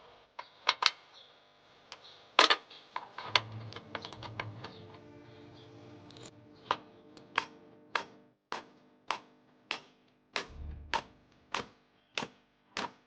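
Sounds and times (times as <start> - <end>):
dull low thud: 10.5 - 11.0.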